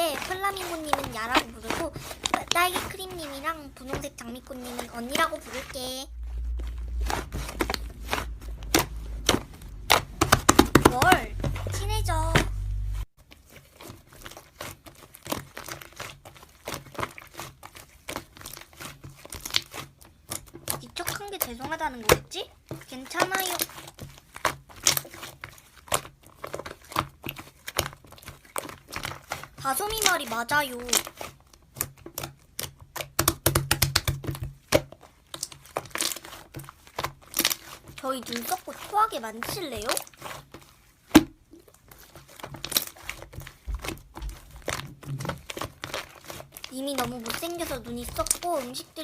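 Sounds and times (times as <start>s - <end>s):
slime squeezed by hand: 0.0s - 21.1s, 22.8s - 49.0s
sharp clicks and small pops: 32.2s - 34.5s.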